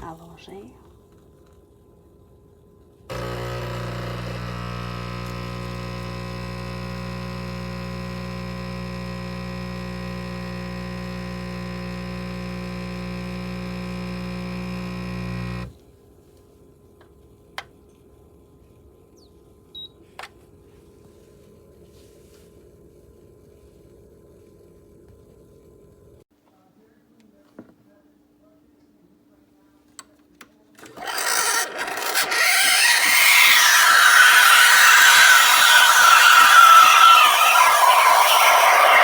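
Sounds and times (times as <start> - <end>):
espresso machine pump buzzing: 3.1 - 15.7, 30.9 - 39.0.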